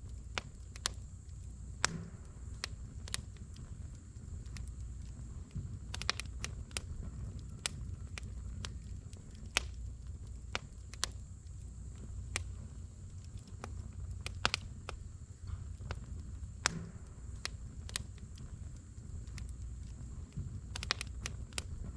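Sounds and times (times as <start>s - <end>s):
wood fire crackling: 0.0s - 21.9s
low rumble: 1.8s - 9.3s, 16.0s - 21.9s.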